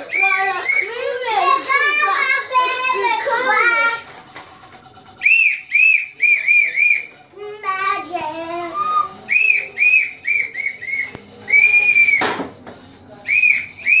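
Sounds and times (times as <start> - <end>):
high whistled chirps: 5.2 - 7.1, 13.3 - 14.0.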